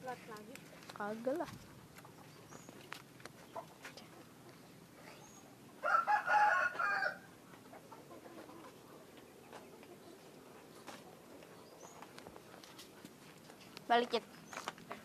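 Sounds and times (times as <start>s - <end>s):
rooster crowing: 5.8s - 7.4s.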